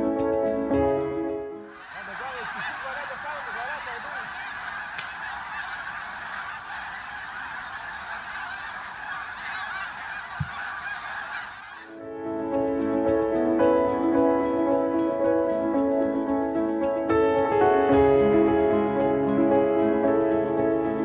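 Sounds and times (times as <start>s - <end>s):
flock of geese honking: 1.6s - 12.0s.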